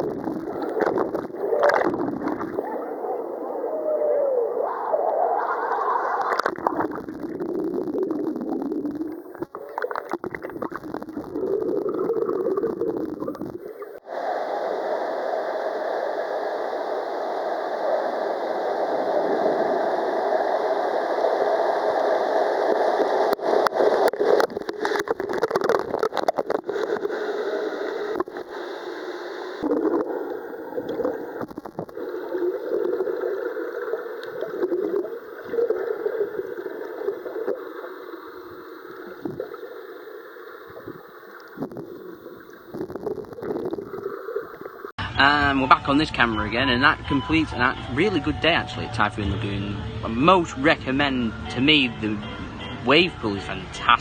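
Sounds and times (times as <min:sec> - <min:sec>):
water rushing and splashing: 0:00.0 - 0:45.0
sharp crackles and knocks: 0:31.0 - 0:32.0.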